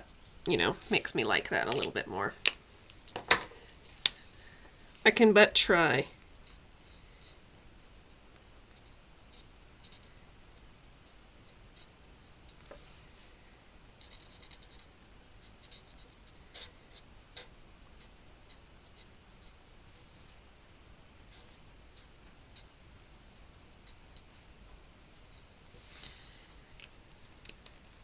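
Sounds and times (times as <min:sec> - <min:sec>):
marker scratching on card: 0:08.8 - 0:10.1, 0:14.0 - 0:20.4, 0:21.3 - 0:22.7.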